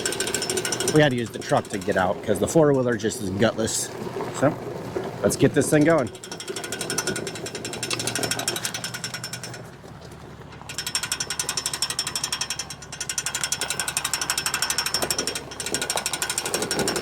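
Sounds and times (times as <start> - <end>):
fast mechanical ratchet clicking: 0.0 - 3.0, 5.8 - 9.8, 10.6 - 17.0.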